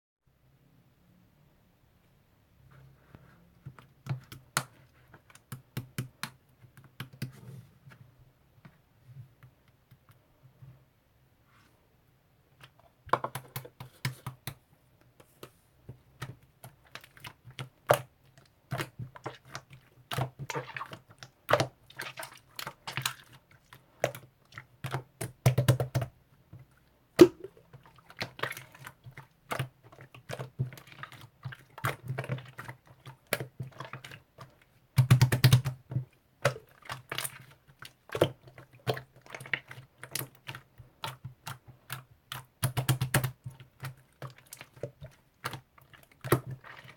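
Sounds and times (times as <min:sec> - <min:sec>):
sticky slime clicking and popping: 0:04.0 - 0:07.3, 0:24.8 - 0:26.1, 0:35.0 - 0:37.4, 0:38.1 - 0:44.6.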